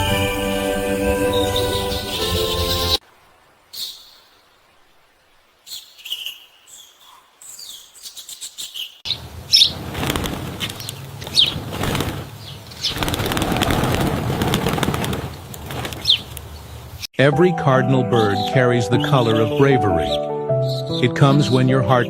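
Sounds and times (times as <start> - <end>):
small birds chirping: 1.3 - 3.0, 3.6 - 13.2, 15.7 - 17.1, 19.0 - 21.7
wings flapping and rustling: 8.0 - 17.1.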